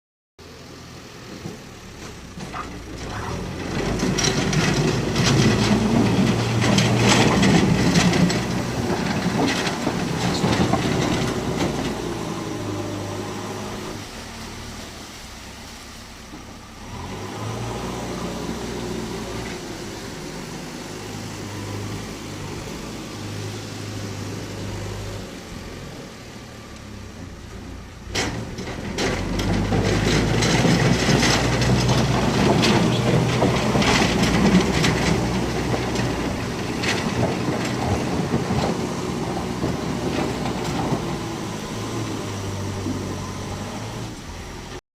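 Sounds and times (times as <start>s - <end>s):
low engine hum: 0.4s - 44.8s
train wheels clattering on track: 1.3s - 13.0s, 28.0s - 44.0s.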